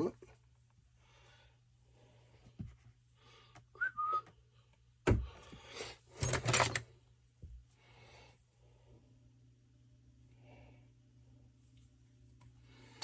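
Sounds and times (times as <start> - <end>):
man whistling: 3.7 - 4.3
tools clattering on workbench: 6.2 - 6.8.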